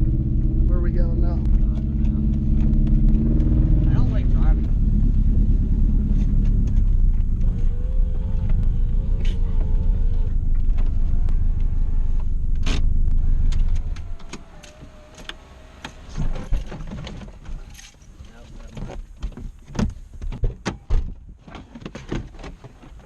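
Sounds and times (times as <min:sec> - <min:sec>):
wavering whine: 0:00.0 - 0:16.8
car engine rumbling: 0:00.0 - 0:23.0.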